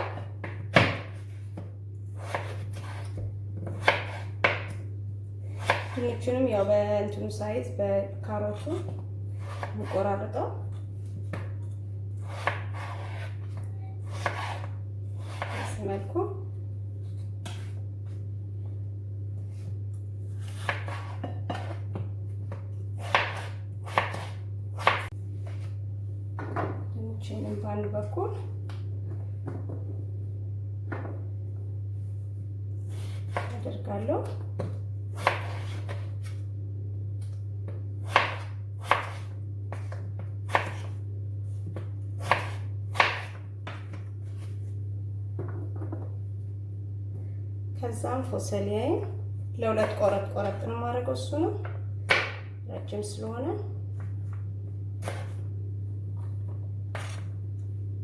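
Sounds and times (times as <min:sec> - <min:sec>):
steady low hum: 0:00.0 - 0:58.0
knife cutting on cutting board: 0:02.2 - 0:04.4, 0:12.2 - 0:15.7, 0:20.4 - 0:21.8, 0:55.0 - 0:55.4, 0:56.9 - 0:57.3.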